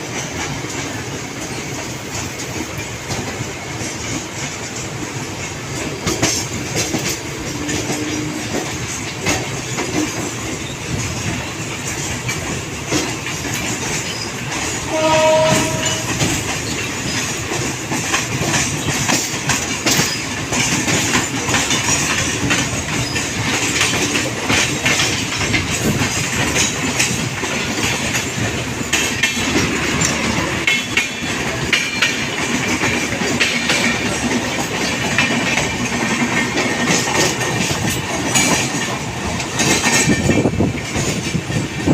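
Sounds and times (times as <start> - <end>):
train wheels clattering on rails: 0.0 - 41.9
train horn blast: 7.6 - 8.7, 14.8 - 16.4.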